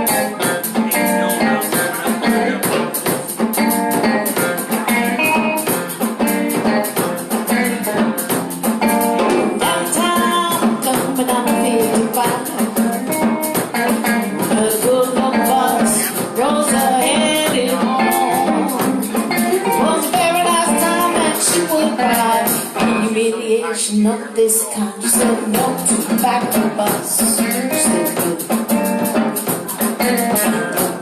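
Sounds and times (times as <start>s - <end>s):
drum kit: 0.0s - 23.2s, 25.0s - 31.0s
bass: 0.0s - 23.3s, 25.0s - 31.0s
electric guitar: 0.0s - 31.0s.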